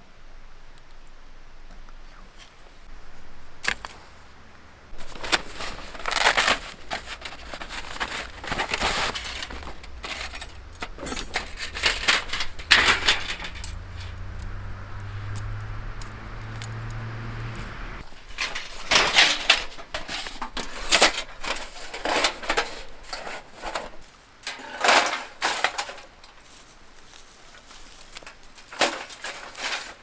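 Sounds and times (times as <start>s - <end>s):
low steady hum: 2.9s - 20.1s
metallic clinking and rustling: 5.0s - 26.7s, 27.6s - 30.0s.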